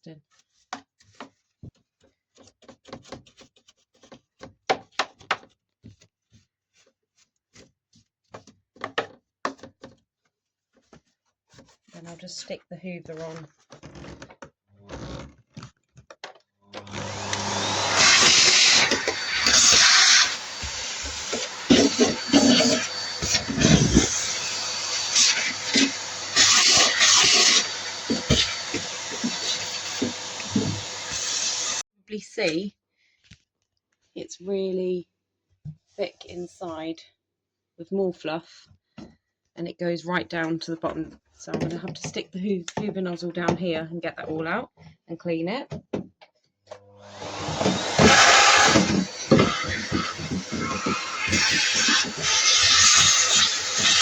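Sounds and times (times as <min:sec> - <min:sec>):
clicks and knocks of plastic parts: 0:08.2 - 0:11.7, 0:15.4 - 0:16.9
vacuum cleaner running: 0:16.8 - 0:31.8, 0:47.0 - 0:54.0.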